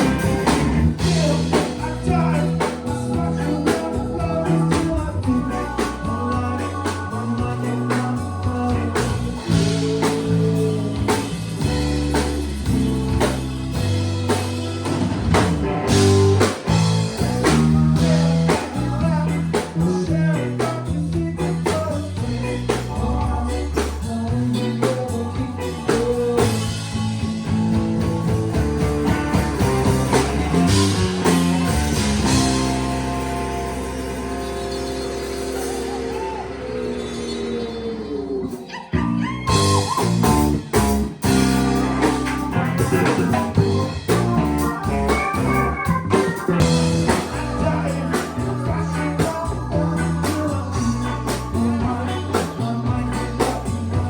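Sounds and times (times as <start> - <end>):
person singing: 0.0 - 11.4, 16.4 - 26.9, 42.1 - 54.0
bass guitar: 0.0 - 54.0
drums: 0.0 - 54.0
electric guitar: 0.0 - 54.0.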